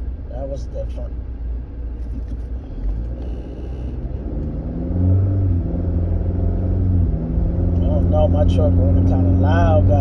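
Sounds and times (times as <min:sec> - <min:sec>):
truck engine revving: 0:02.5 - 0:10.0.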